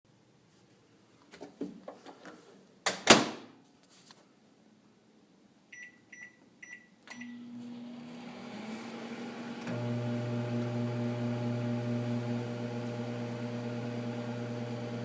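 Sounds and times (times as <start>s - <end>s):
keypad beeps: 5.7s - 7.4s
microwave oven humming: 7.2s - 15.0s.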